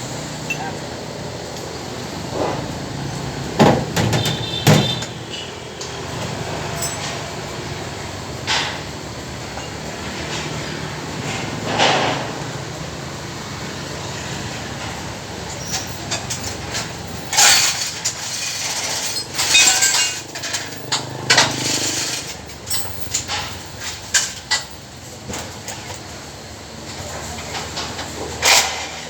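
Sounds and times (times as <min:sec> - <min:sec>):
sharp knocks: 0:03.6 - 0:05.2.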